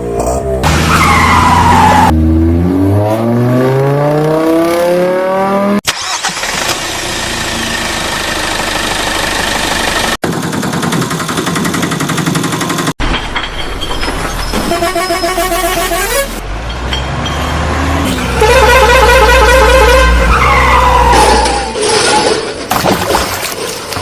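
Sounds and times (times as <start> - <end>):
engine revving up: 0.3 - 6.8.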